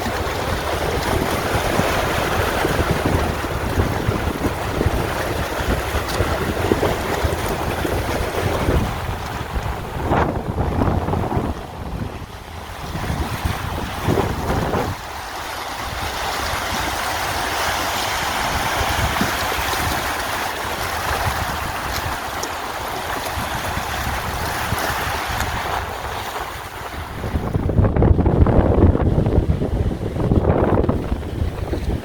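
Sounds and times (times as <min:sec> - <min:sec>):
sea waves breaking on shore: 0:00.0 - 0:32.0
wind rumbling on microphone: 0:00.0 - 0:32.0.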